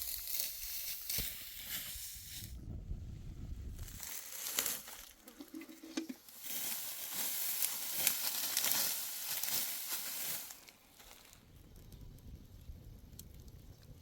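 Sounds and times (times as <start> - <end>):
dry wheat stalks rustling: 0.0 - 2.5, 3.8 - 11.5.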